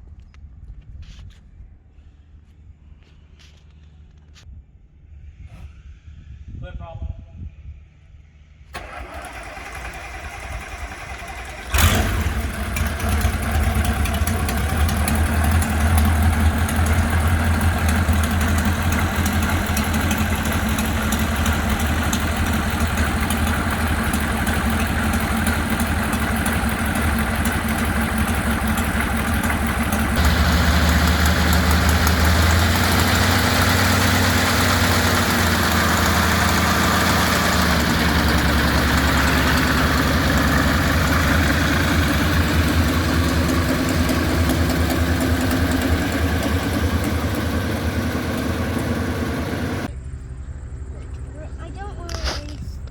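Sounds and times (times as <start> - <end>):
radial engine starting and idling: 8.7 - 50.0.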